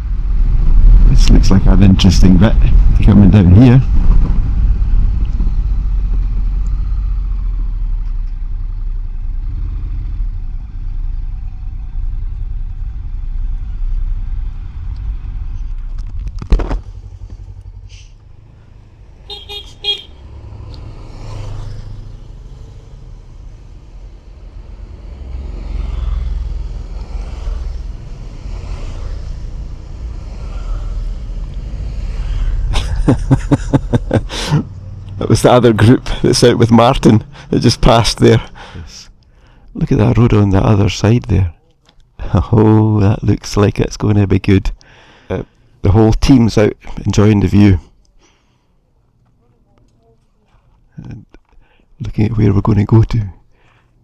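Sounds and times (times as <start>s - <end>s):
wind noise: 0.0s - 6.5s
motorcycles passing: 16.9s - 39.4s
horn toot: 19.2s - 20.2s.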